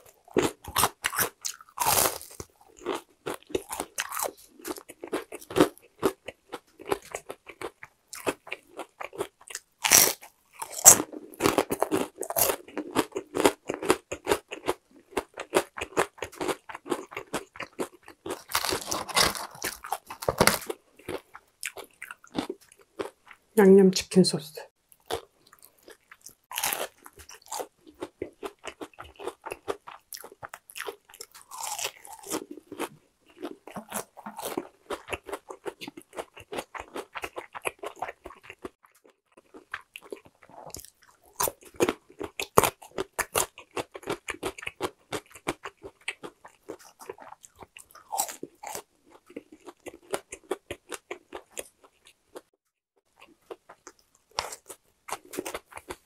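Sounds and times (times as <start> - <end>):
crunching and chewing fried chicken: 0.0 - 23.5, 24.9 - 56.0
radish crunching: 18.3 - 21.8.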